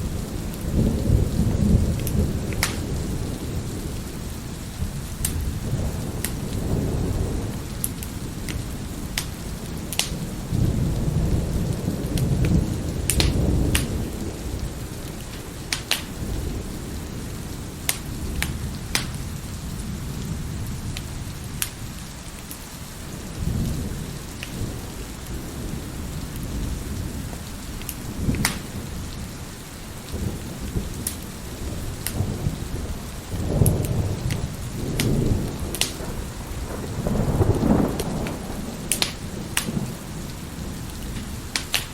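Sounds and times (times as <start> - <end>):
heavy rain: 0.0 - 41.9
wood fire crackling and popping: 1.7 - 3.2, 4.0 - 19.4, 20.8 - 22.8, 24.2 - 25.4, 27.2 - 29.2, 30.0 - 41.9
rolls of thunder: 30.1 - 41.9.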